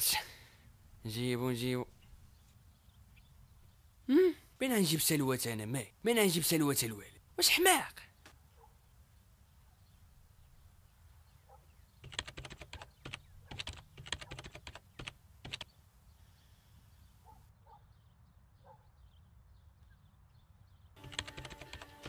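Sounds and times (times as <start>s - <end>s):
typing on computer keyboard: 12.0s - 15.7s, 21.0s - 22.0s.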